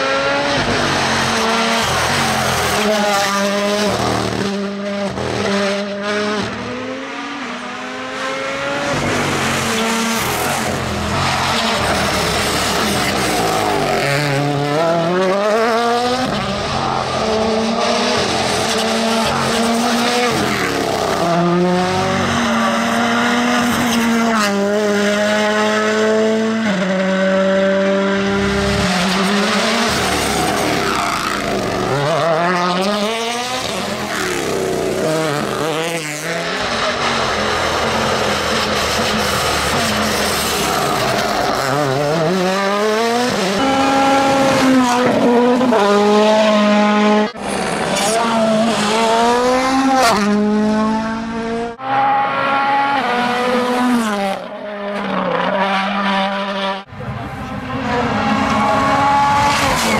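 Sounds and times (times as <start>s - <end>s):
tyre and road noise: 0.0s - 56.2s
rally car engine revving: 0.0s - 59.9s.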